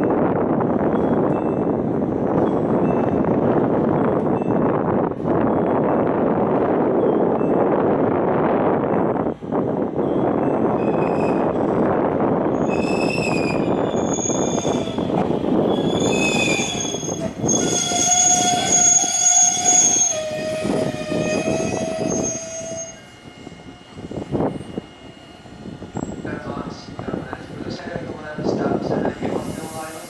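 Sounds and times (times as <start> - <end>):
train rumbling: 0.0 - 30.0
high-pitched squealing tones: 12.6 - 26.2.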